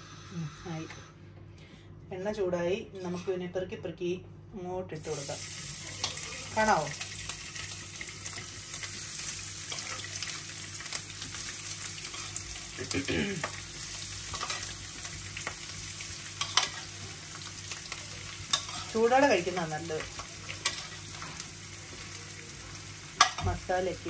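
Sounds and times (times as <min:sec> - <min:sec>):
sausage sizzling in oil: 0:05.0 - 0:24.0.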